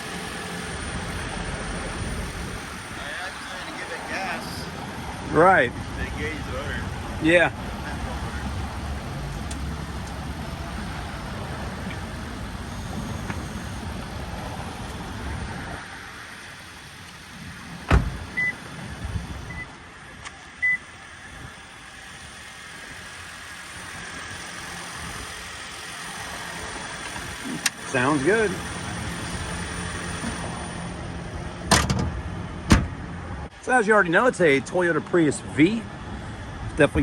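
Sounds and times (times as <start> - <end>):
car engine running: 0.0 - 19.7
loud thump: 17.9 - 18.2, 31.7 - 33.0.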